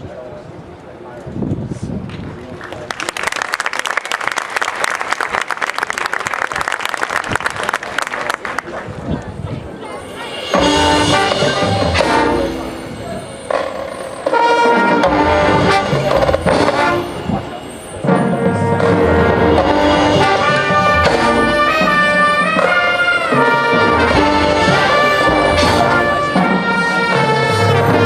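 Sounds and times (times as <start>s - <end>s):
marching percussion: 9.6s - 28.0s
brass band chords: 9.8s - 28.0s.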